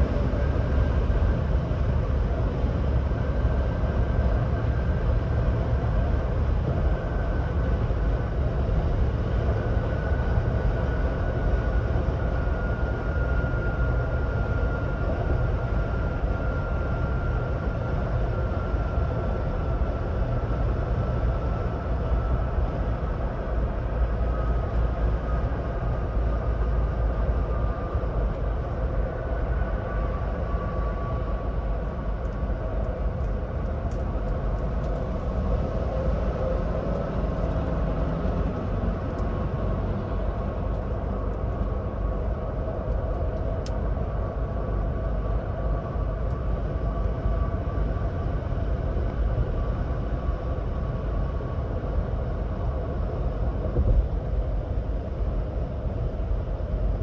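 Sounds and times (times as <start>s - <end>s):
road and tyre rumble: 17.4s - 57.0s.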